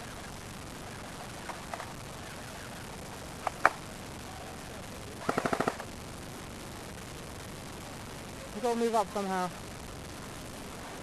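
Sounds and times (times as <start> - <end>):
steady hiss: 0.0 - 11.0
airsoft guns firing: 5.2 - 5.9.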